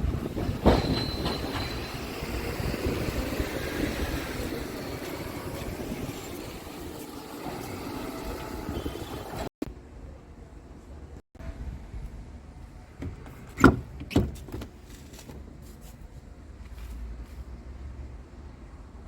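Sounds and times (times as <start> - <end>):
diesel truck engine rumble: 0.0 - 9.5
road and wind noise: 0.0 - 19.0.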